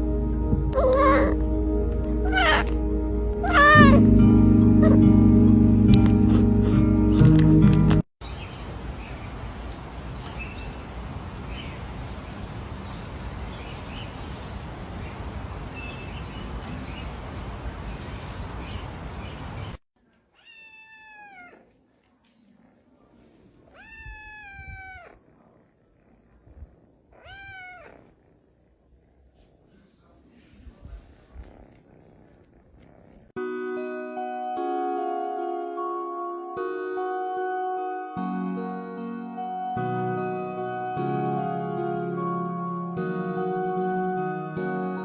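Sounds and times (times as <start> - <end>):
background music: 0.0 - 8.0, 33.4 - 45.0
animal calling: 0.7 - 1.4, 2.2 - 2.7, 3.4 - 4.1.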